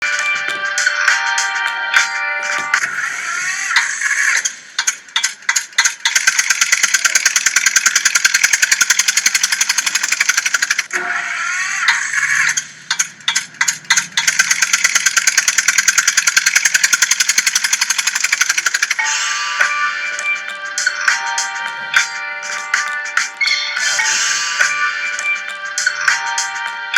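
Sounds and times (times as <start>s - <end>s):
toy tractor engine clatter: 4.8s - 10.9s, 12.9s - 19.0s.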